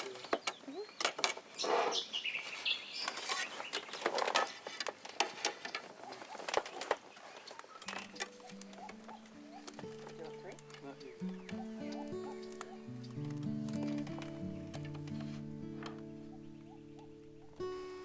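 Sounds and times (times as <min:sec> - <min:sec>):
birds chirping: 0:00.0 - 0:18.0
soft music: 0:07.8 - 0:18.0.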